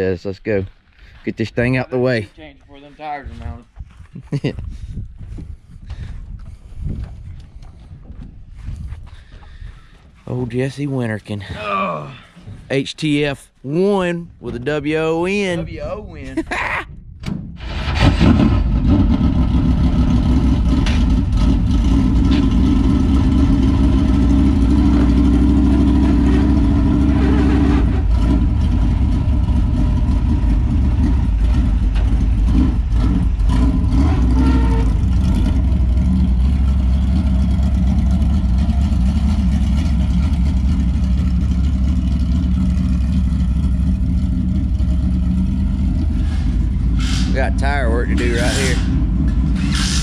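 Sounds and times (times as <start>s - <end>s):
race car engine running: 18.6s - 50.0s.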